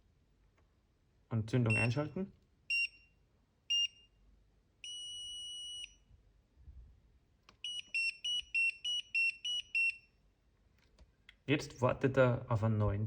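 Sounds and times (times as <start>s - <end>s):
alternating two-tone beeping: 1.7s - 2.0s, 7.6s - 10.0s
steady buzzer beep: 1.7s - 2.0s, 2.7s - 4.2s, 4.8s - 6.0s, 7.6s - 10.1s.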